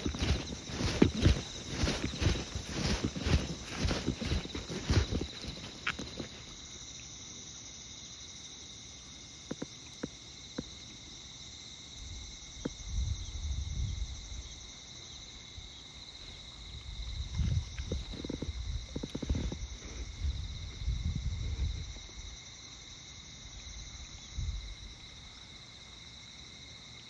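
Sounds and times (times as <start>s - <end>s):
footsteps walking: 0.0s - 6.6s
insects chirring: 0.0s - 27.0s.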